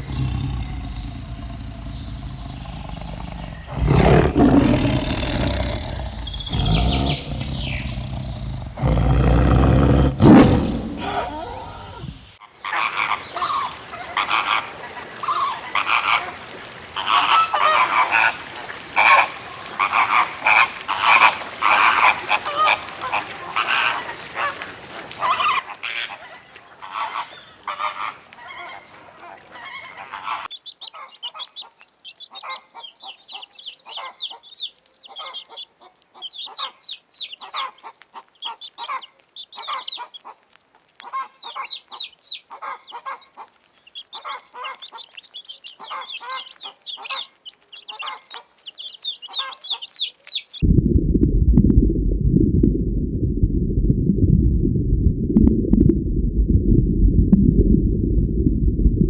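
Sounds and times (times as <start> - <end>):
chickens clucking: 41.0 - 50.4
loud steady low rumble: 50.6 - 59.0.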